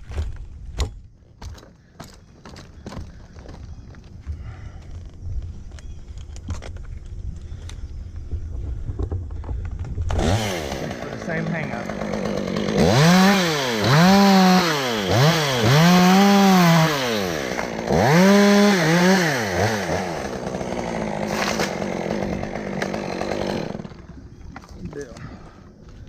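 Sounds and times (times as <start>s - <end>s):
chainsaw revving: 10.0s - 25.6s.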